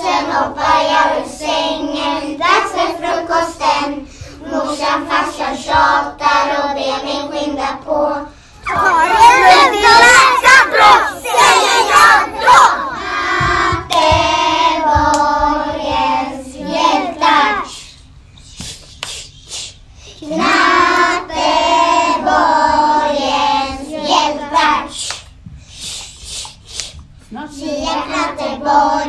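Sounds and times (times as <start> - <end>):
children singing in unison: 0.0 - 17.8, 20.2 - 25.0, 27.5 - 29.0
hand claps: 13.7 - 14.2, 15.0 - 15.5, 18.5 - 19.3, 20.4 - 21.1, 25.0 - 25.4.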